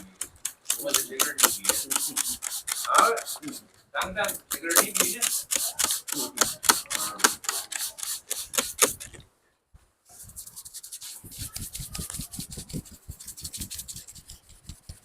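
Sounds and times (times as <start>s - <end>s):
razor scraping head: 0.0s - 9.2s.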